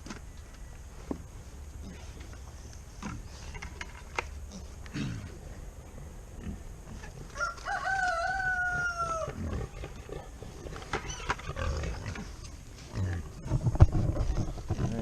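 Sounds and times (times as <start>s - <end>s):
rooster crowing: 7.4s - 9.5s.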